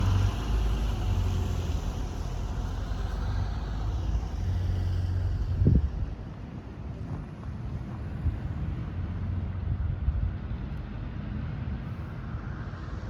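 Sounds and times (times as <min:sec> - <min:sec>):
vehicle rumbling past: 0:00.0 - 0:06.1
wind buffeting microphone: 0:05.2 - 0:10.6.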